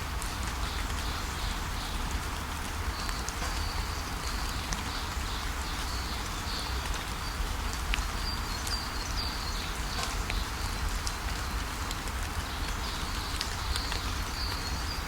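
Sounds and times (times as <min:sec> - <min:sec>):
steady rainfall: 0:00.0 - 0:15.0
sharp drip ticks: 0:02.6 - 0:14.8
small birds chirping: 0:03.0 - 0:11.6, 0:12.4 - 0:15.0.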